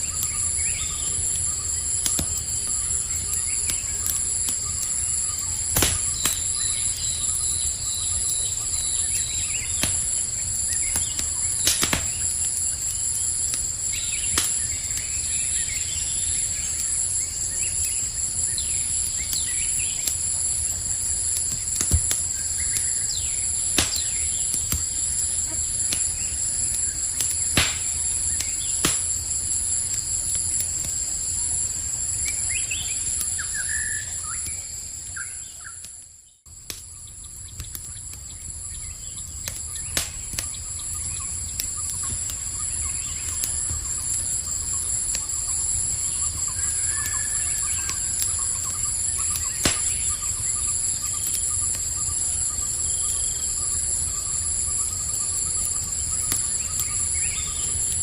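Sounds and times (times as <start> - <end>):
fire crackling: 0.0 - 58.0
insects chorus: 0.0 - 58.0
bird chirps: 32.2 - 36.0.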